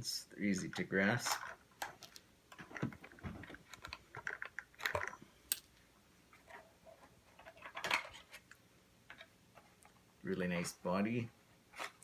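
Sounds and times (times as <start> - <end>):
plastic clicks and rattles: 0.7 - 5.7, 7.3 - 10.0.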